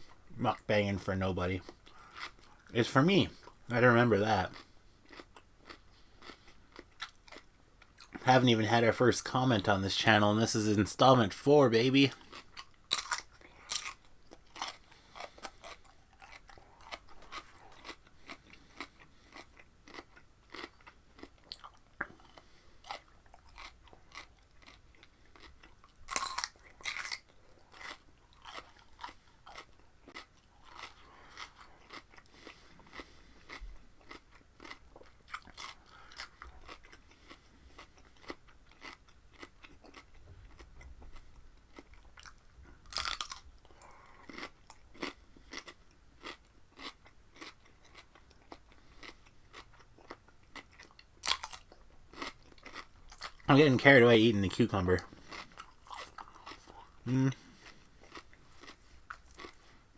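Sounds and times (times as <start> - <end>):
person chewing cucumber: 1.5 - 8.2, 12.1 - 59.9
crunching bites: 12.1 - 40.7, 41.8 - 43.4, 44.2 - 53.6, 54.8 - 59.6.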